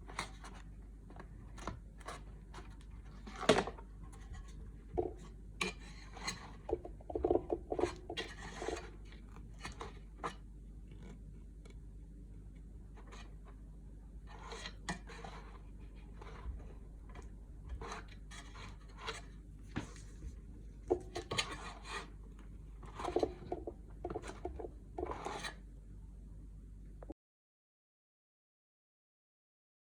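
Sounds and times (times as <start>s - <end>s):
steady low hum: 0.0s - 27.2s
hand scraping and rubbing: 14.3s - 22.2s.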